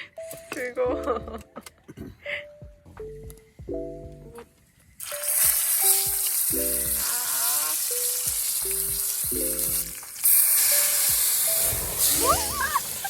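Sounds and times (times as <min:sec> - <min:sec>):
food sizzling in hot pan: 0:05.0 - 0:13.0.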